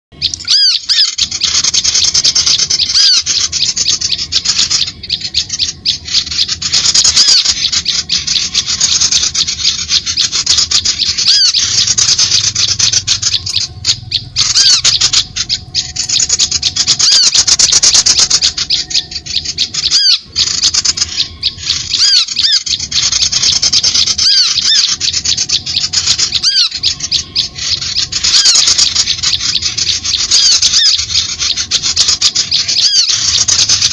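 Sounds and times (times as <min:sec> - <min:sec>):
harsh chattering bird calls: 0:00.1 - 0:33.9
high whistled bird notes: 0:00.1 - 0:33.9.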